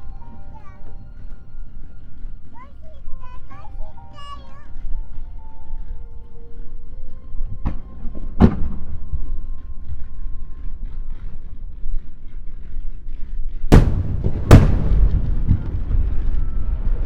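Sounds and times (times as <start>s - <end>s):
firework shells bursting: 13.7s - 15.8s.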